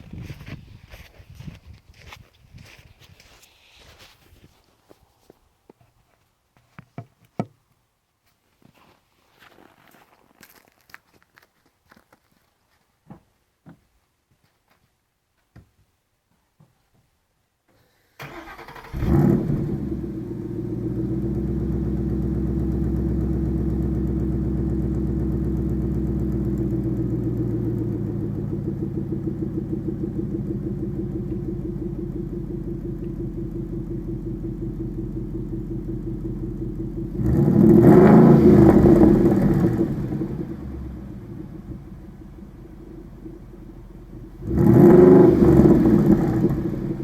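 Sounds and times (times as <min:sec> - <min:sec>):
car engine starting and idling: 0:17.9 - 0:47.0
car engine revving: 0:18.2 - 0:47.0.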